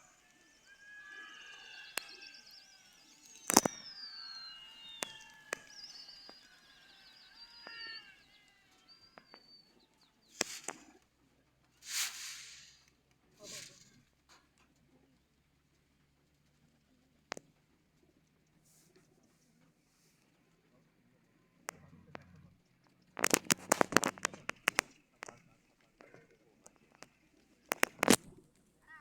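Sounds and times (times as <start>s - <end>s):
sharp clicks: 0.0s - 11.1s, 21.7s - 28.4s
small birds chirping: 0.0s - 14.0s, 16.8s - 29.0s
brief hissing bursts: 10.3s - 11.0s, 11.8s - 14.0s.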